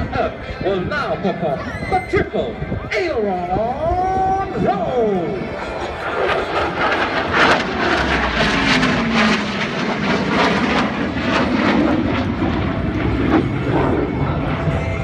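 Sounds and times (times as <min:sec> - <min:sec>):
fighter jet flying past: 0:05.2 - 0:15.0.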